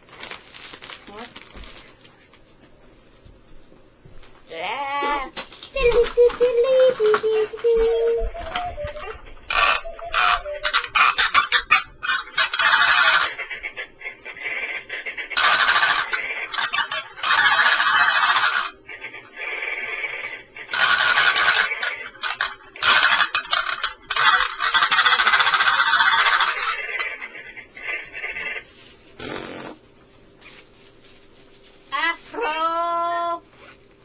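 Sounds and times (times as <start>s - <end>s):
toy parrot screeching: 9.5s - 13.4s, 15.4s - 18.7s, 20.8s - 26.8s.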